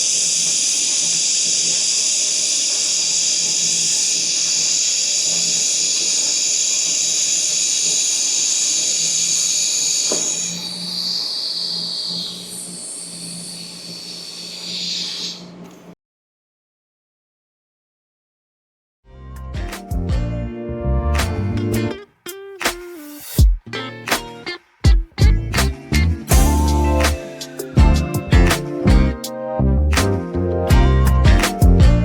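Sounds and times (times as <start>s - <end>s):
welding arc hissing: 0.0s - 15.6s.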